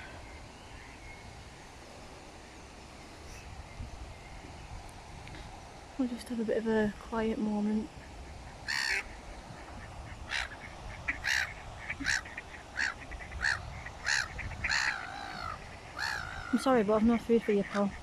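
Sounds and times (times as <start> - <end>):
waterfowl calling: 7.8 - 18.0.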